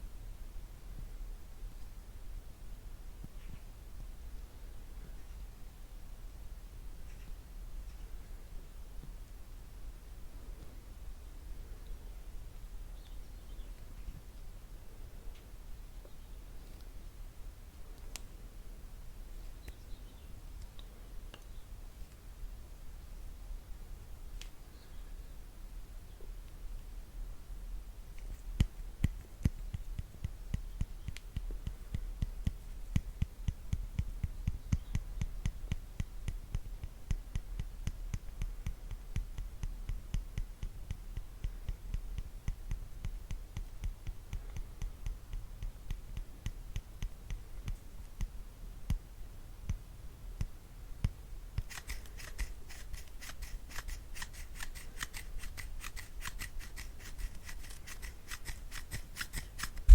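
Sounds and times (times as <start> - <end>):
brush strokes on microphone: 51.6 - 59.9.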